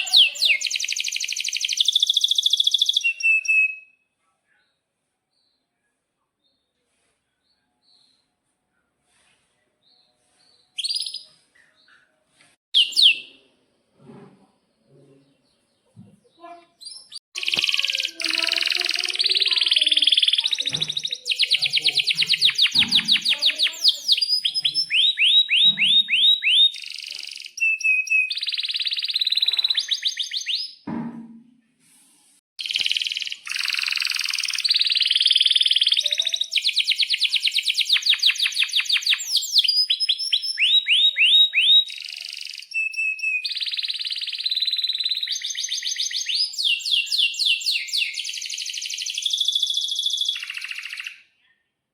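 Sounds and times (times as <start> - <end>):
canary singing chirps and trills: 0.0 - 4.0, 12.8 - 13.5, 15.0 - 30.8, 32.6 - 51.4.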